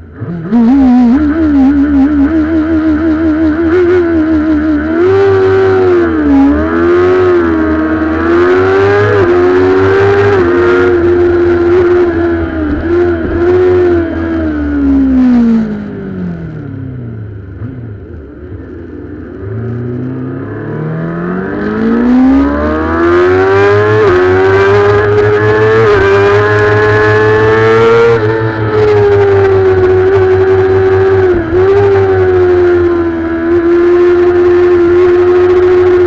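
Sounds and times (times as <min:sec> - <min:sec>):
race bike engine revving: 0:00.2 - 0:16.0, 0:19.6 - 0:36.0.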